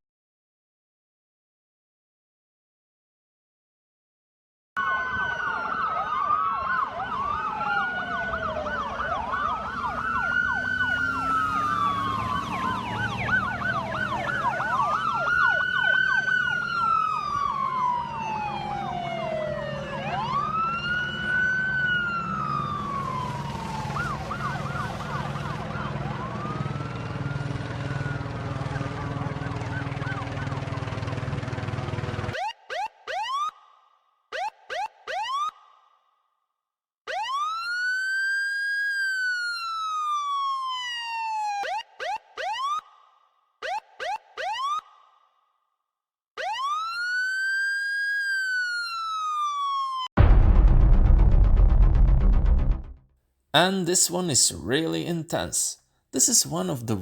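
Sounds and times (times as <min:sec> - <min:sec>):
police siren wail and yelp: 0:04.8 - 0:36.0, 0:37.1 - 0:45.3, 0:46.4 - 0:50.1.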